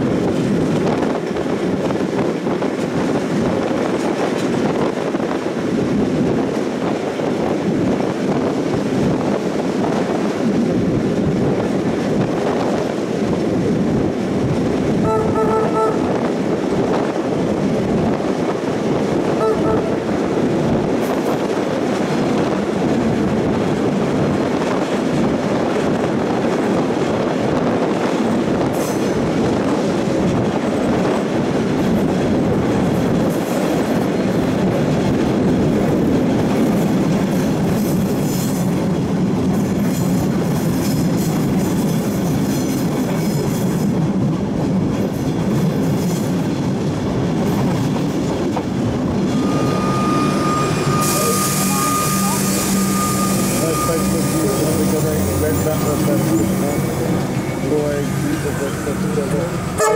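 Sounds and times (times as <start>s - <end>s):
wheel clickety-clack: 0.0s - 15.1s, 20.6s - 49.4s
train wheels rumbling on track: 0.0s - 59.9s
wheel squeal: 49.3s - 59.1s.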